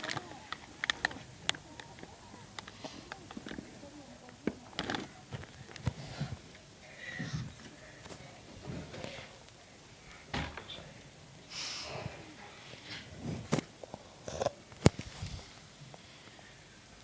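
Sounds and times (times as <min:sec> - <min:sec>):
clicks: 0:00.0 - 0:06.6.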